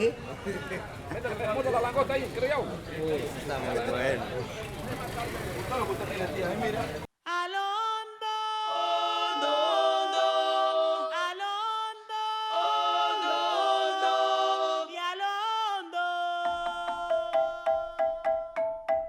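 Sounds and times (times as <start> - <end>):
voices singing a cappella: 7.2 - 18.2.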